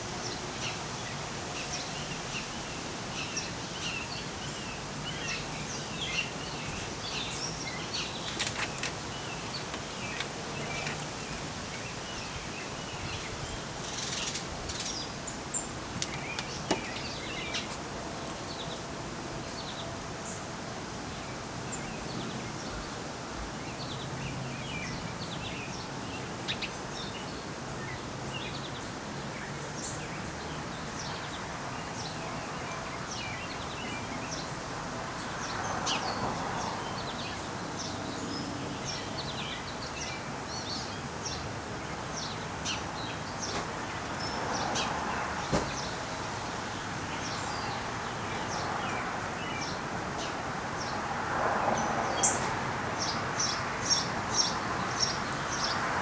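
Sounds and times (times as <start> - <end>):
steady outdoor noise: 0.0 - 56.0
small birds chirping: 3.2 - 18.8.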